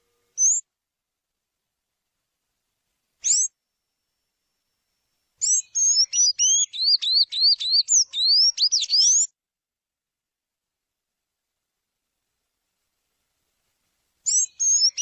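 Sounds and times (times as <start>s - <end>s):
songbird singing: 0.0s - 0.8s, 3.2s - 9.4s, 14.2s - 15.0s.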